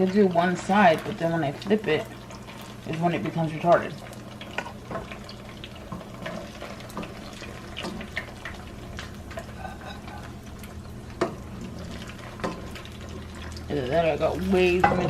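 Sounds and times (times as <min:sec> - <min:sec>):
tortilla sizzling in hot oil: 0:00.0 - 0:15.0
sharp crackles and ticks: 0:00.9 - 0:09.5.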